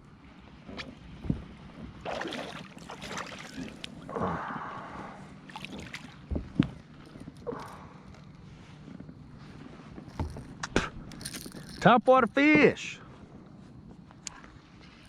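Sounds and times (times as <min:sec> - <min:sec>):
fish splashing at water surface: 0:02.0 - 0:03.8.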